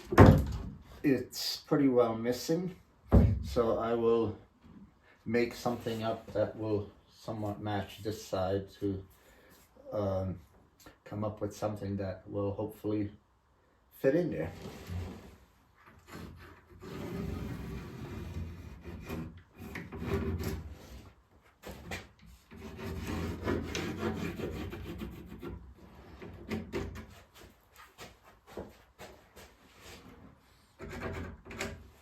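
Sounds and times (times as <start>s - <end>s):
wood scraping on wood: 14.4s - 32.0s.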